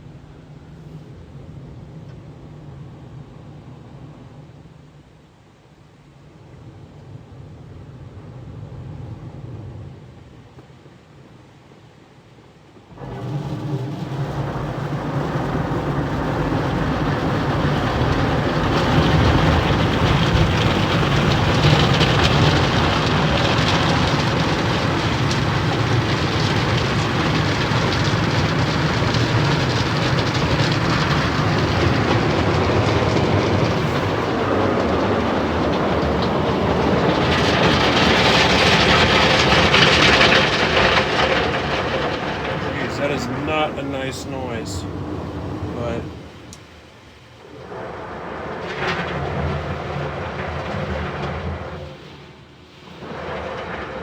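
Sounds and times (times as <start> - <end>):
car wash brushes churning: 12.9 - 54.0.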